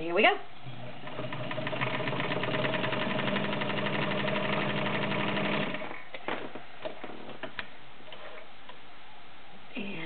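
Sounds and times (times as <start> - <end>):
sewing machine sewing: 1.0 - 6.0.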